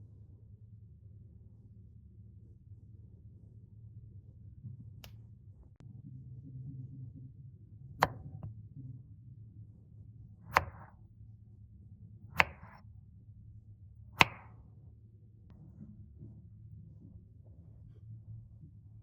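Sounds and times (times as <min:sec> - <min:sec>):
sharp knocks: 0:10.6 - 0:10.9, 0:12.4 - 0:12.8, 0:14.2 - 0:14.5.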